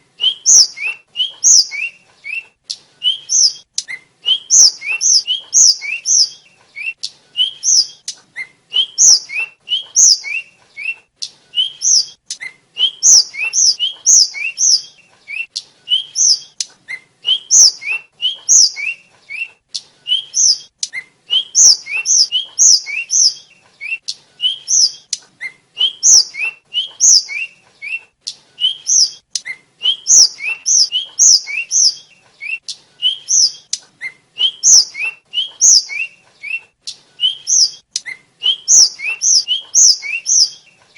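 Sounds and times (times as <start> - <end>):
bird singing high whistled notes: 0.2 - 40.7.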